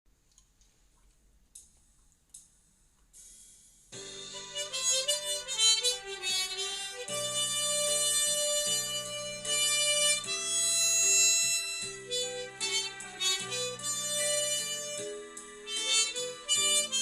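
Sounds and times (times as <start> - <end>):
harmonica slow melody: 4.0 - 17.0.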